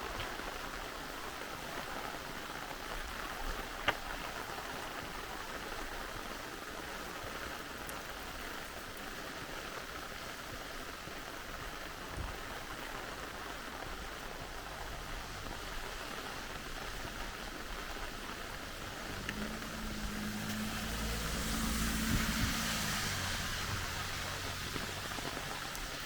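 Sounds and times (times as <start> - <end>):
rain falling: 0.0 - 26.0
stream rushing: 11.3 - 26.0.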